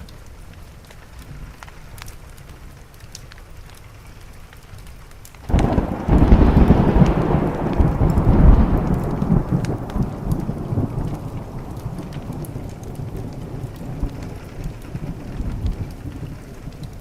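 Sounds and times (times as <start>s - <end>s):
rain pattering: 0.0s - 17.0s
wood fire crackling: 0.0s - 17.0s
thunderclap rumbling: 5.5s - 17.0s.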